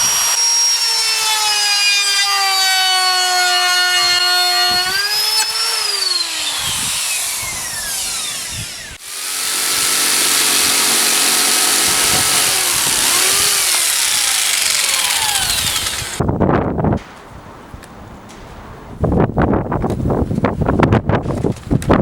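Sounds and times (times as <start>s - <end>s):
electric power tool whining: 0.0s - 16.2s.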